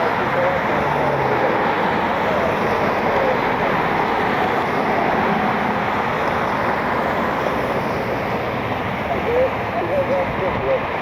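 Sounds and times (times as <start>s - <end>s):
jet engines rushing with whine: 0.0s - 11.0s.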